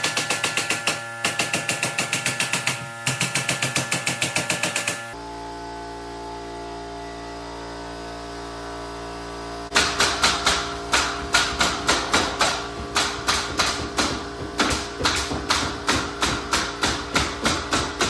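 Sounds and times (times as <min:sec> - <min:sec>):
pneumatic staple gun firing: 0:00.0 - 0:05.2, 0:09.7 - 0:18.0
steady hum: 0:09.6 - 0:18.0.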